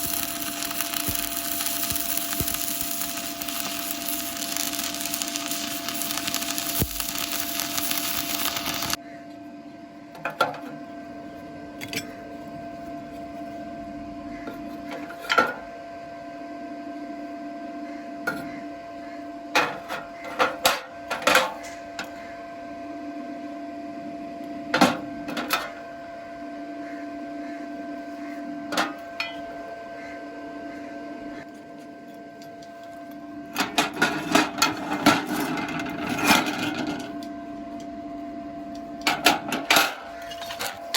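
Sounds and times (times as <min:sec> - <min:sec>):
arc welding crackling: 0:00.0 - 0:09.0, 0:33.5 - 0:37.9
steady welder hum: 0:00.0 - 0:09.0, 0:31.6 - 0:40.9.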